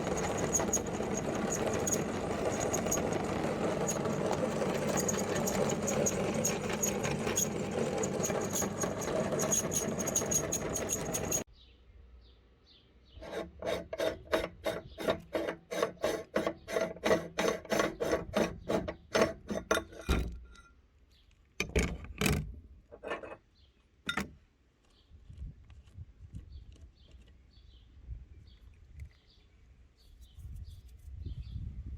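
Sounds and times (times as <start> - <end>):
rhythmic rasping strokes: 0.0 - 11.4
meat grinder grinding chalk: 0.0 - 11.5, 13.2 - 19.6.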